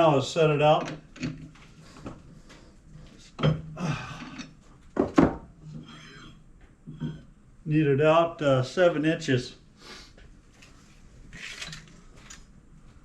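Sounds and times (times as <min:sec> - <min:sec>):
metal clunks and scraping: 0:03.0 - 0:07.4.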